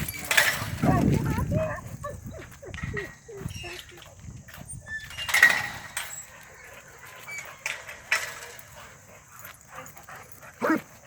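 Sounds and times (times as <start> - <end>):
dog barking and whimpering: 10.5 - 11.0.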